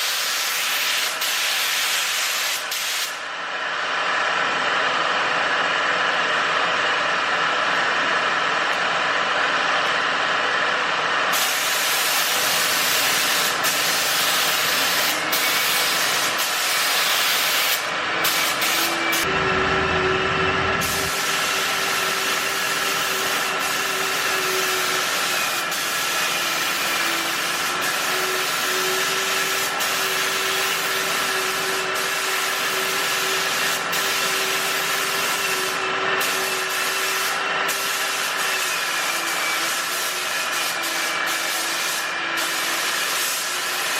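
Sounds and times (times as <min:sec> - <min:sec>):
spray gun hissing: 0:00.0 - 0:03.3, 0:11.3 - 0:19.3, 0:20.8 - 0:43.9
whistling airflow: 0:08.3 - 0:43.6.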